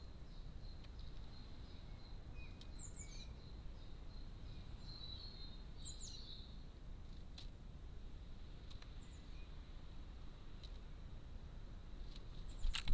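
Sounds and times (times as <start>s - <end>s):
small bird chirps: 0.0s - 6.6s, 8.7s - 9.6s.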